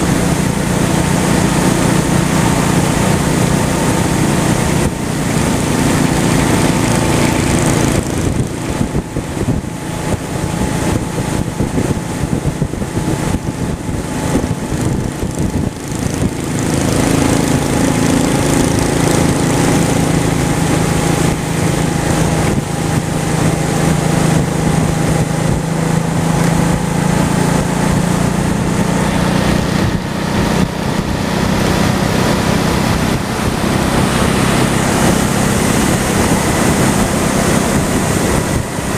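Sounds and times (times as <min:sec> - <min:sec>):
motorcycle engine running: 0:00.0 - 0:38.9
wind on microphone: 0:00.0 - 0:38.9.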